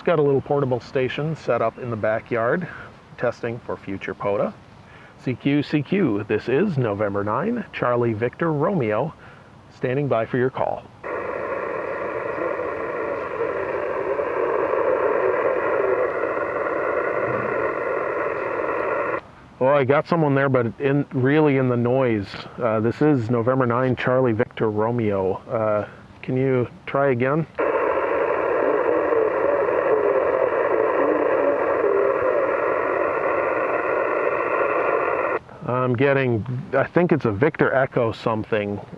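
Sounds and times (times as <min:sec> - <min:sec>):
radio receiver hiss: 0:00.0 - 0:09.2, 0:09.8 - 0:38.9
faint wavering radio voice: 0:10.2 - 0:20.1, 0:27.3 - 0:35.4.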